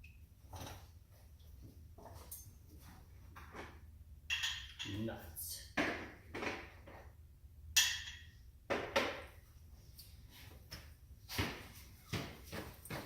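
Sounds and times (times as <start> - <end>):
hand tools clinking and knocking: 3.4 - 5.1.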